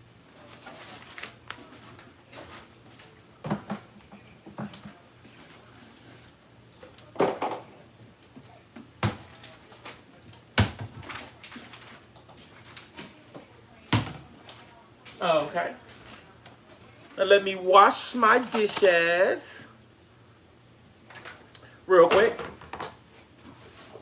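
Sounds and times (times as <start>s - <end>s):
kitchen knocks and bangs: 18.2s - 19.1s.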